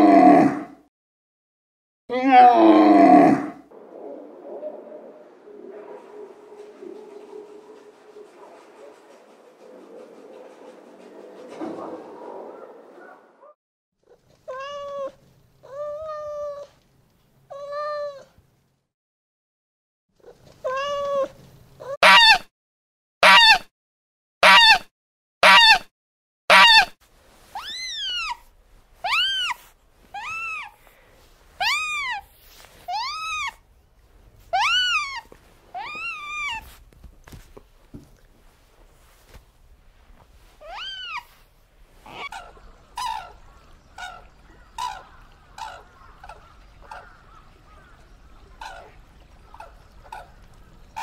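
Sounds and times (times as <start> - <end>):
animal calls: 2.1 - 13.5, 27.6 - 31.0, 31.6 - 33.6, 34.5 - 36.8, 40.6 - 51.0.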